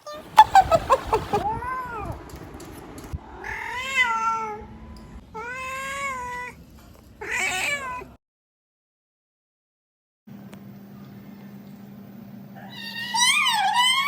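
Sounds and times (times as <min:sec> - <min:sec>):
cat meowing: 0:03.4 - 0:04.6, 0:07.2 - 0:08.2.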